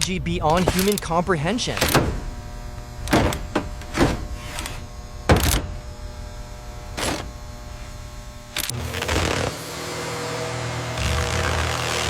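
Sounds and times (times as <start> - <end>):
steady hum: 0.0 - 12.0
heavy thunks and clanks: 1.7 - 2.4, 3.0 - 5.9.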